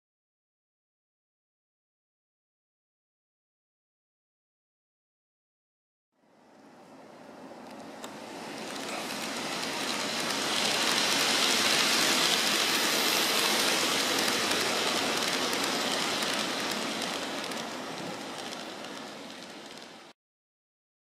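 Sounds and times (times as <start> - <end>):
model train motor whir: 7.7 - 20.1
model train wheels rattling: 7.7 - 20.1.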